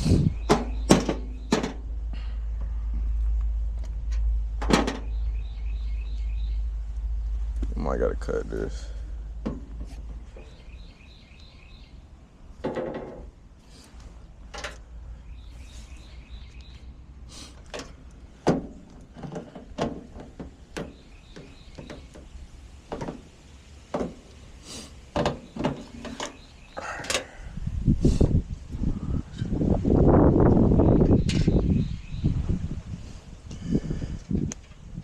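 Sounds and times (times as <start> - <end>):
bird chirping: 0.0 - 1.6, 5.0 - 9.2, 9.9 - 12.2, 15.1 - 18.2, 20.2 - 22.7, 24.7 - 27.4, 30.7 - 32.6.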